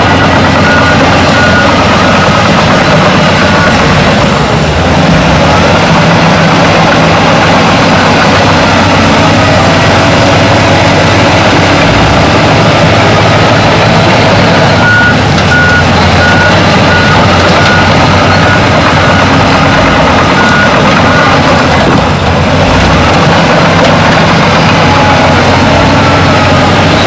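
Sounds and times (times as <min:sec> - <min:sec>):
reversing alarm beeping: 0:00.0 - 0:04.7, 0:07.4 - 0:21.9
heavy machinery engine running: 0:00.0 - 0:27.0.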